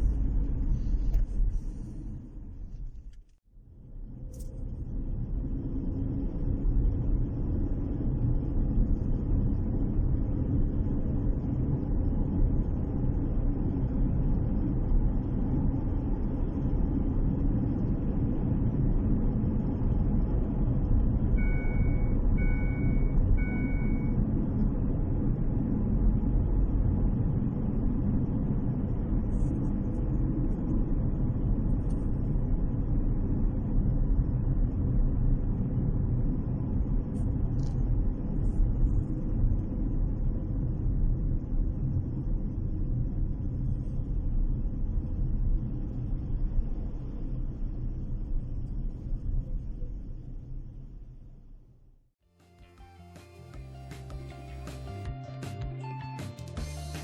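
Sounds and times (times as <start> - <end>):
car driving rumble: 0.0 - 51.8
short beeps: 21.4 - 24.2.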